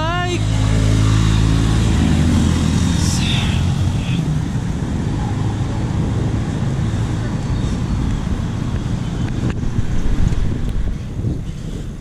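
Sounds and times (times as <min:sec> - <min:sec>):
road noise: 0:00.0 - 0:12.0
vehicle engine humming: 0:00.0 - 0:12.0
wind rush: 0:00.4 - 0:12.0.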